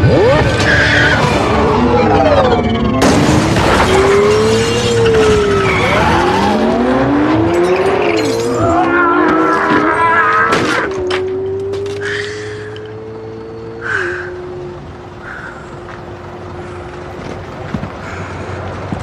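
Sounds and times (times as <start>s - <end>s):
high-revving vehicle engines: 0.0s - 19.0s
sharp hit: 3.0s - 6.2s.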